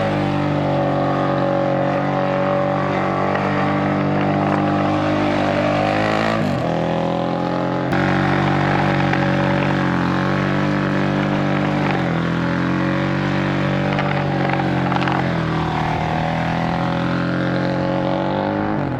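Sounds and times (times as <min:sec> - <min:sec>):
motorcycle engine running hard: 0:00.0 - 0:18.9.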